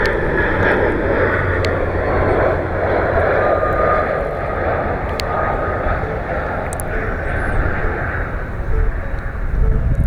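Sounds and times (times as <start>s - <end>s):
airliner engines passing overhead: 0.0s - 10.0s
thin engine whine: 0.0s - 10.0s.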